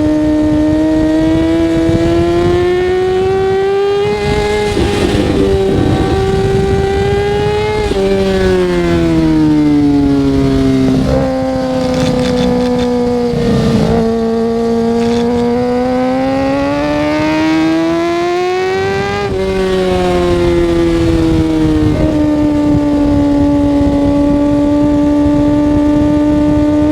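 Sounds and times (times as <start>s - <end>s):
motorcycle engine shifting gears: 0.0s - 26.9s.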